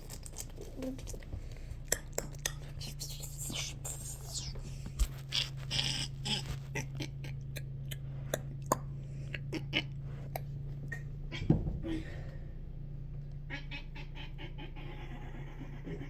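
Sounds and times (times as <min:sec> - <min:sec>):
steady low hum: 0:00.0 - 0:16.0
low thump: 0:11.4 - 0:12.8.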